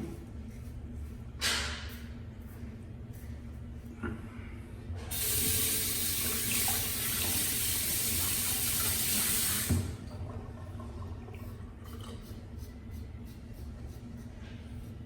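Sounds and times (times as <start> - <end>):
sink tap running: 5.1 - 10.1.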